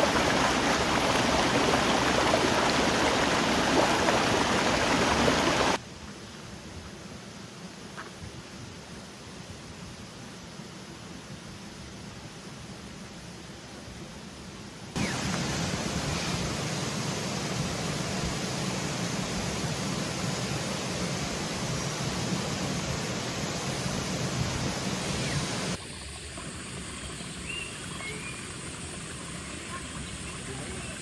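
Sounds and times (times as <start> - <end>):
steady rushing noise: 15.0 - 25.8.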